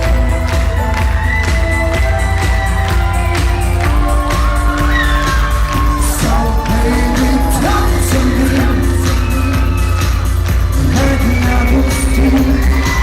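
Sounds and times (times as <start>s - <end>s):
pop band with drums and bass: 0.0s - 13.0s
man singing: 5.9s - 13.0s.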